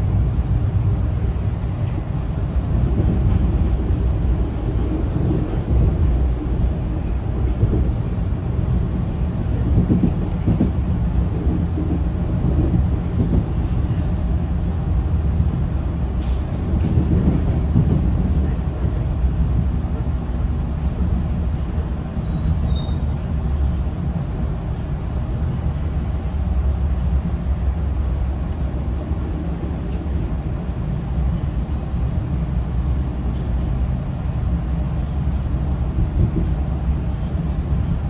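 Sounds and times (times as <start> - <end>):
train rumbling from inside coach: 0.0 - 38.0.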